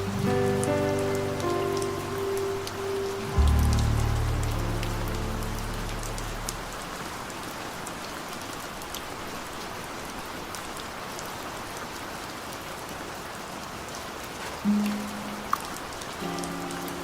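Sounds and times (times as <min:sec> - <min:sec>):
low sustained musical chord: 0:00.0 - 0:07.3, 0:16.2 - 0:17.0
steady rain: 0:00.0 - 0:17.0.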